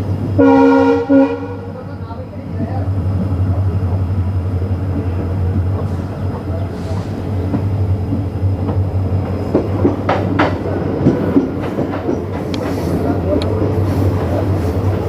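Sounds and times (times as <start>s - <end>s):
train rumbling on track: 0.0s - 15.0s
wheels clacking over rail joints: 4.9s - 15.0s.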